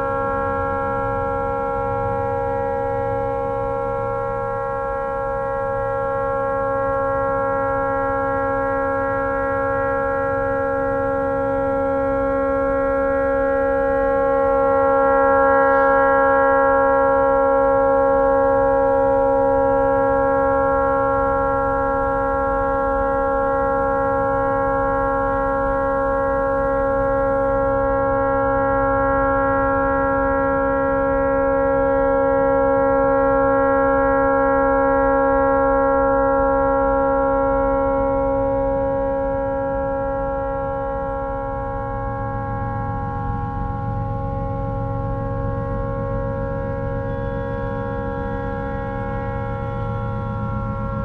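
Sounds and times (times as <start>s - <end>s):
tugboat horn continuous tone: 40.7s - 51.0s.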